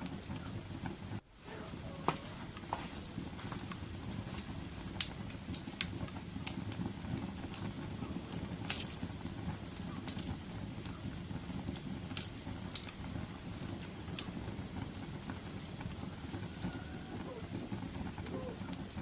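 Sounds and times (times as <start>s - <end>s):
low rumble of fire: 0.0s - 19.0s
wood fire crackling and popping: 0.0s - 19.0s.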